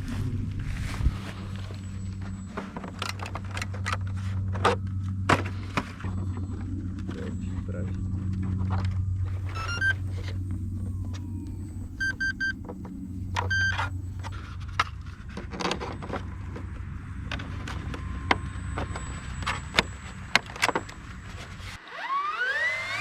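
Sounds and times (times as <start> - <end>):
steady low hum: 0.0 - 21.8
short electronic beeps: 9.4 - 10.4, 11.7 - 12.6, 13.4 - 14.0.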